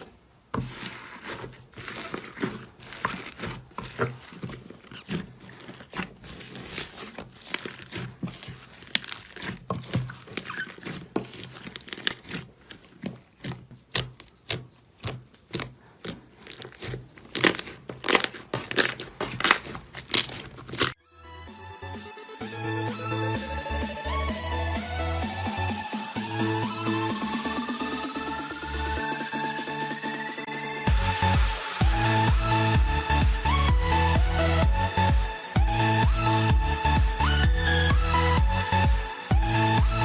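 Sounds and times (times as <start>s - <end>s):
slime crackling and popping: 0.6s - 21.0s
electronic music: 21.0s - 40.0s.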